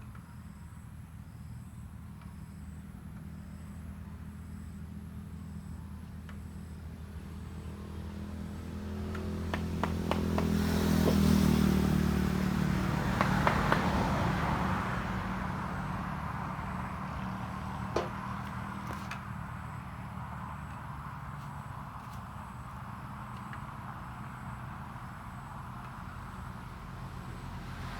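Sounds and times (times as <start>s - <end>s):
vehicle engine passing by: 6.8s - 27.9s
sharp knocks: 9.1s - 11.4s, 13.2s - 14.0s.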